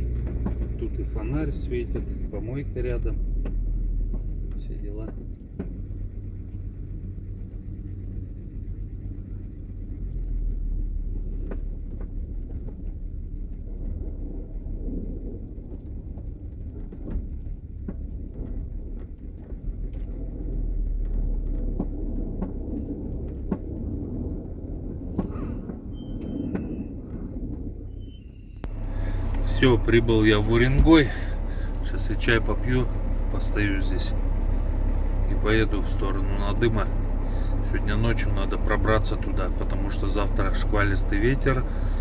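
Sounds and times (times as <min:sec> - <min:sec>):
light clicks and knocks: 0:00.0 - 0:06.7
vehicle engine running slowly: 0:00.0 - 0:42.0.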